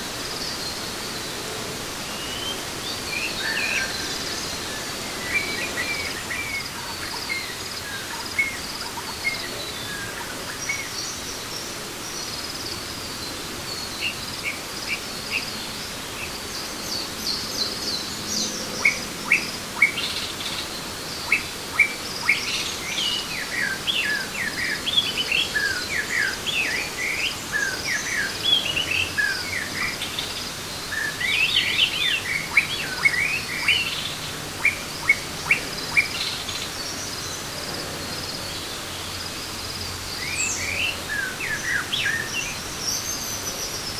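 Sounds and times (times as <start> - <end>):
steady background hiss: 0.0 - 43.9.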